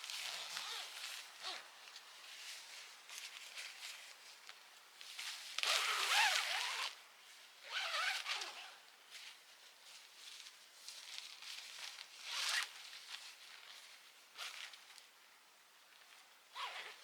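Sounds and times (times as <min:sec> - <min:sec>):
zipper being pulled: 0:00.2 - 0:01.6, 0:05.6 - 0:06.9, 0:07.6 - 0:08.7, 0:12.3 - 0:12.6, 0:16.6 - 0:17.0.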